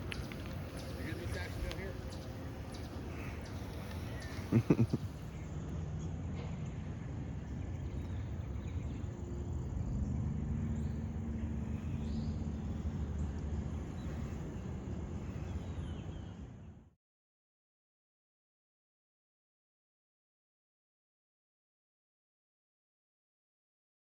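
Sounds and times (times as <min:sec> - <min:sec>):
low rumble with faint hum: 0:00.0 - 0:16.9.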